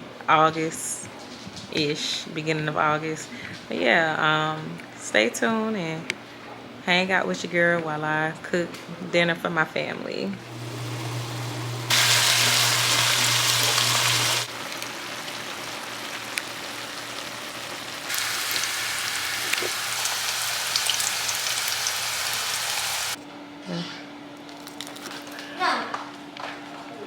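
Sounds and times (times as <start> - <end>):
food sizzling in hot oil: 10.4 - 23.2.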